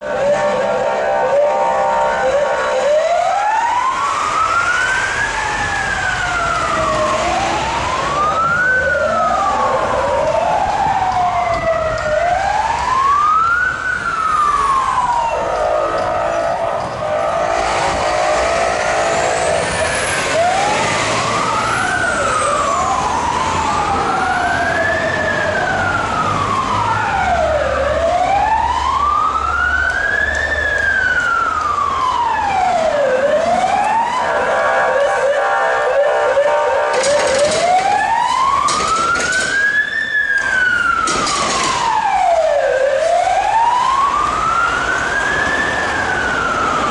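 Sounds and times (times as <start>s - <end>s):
steady horn: 0.0s - 3.0s, 15.6s - 20.3s, 34.2s - 37.3s
fire engine sirens wailing: 0.0s - 46.9s
truck engines rumbling: 0.0s - 46.9s.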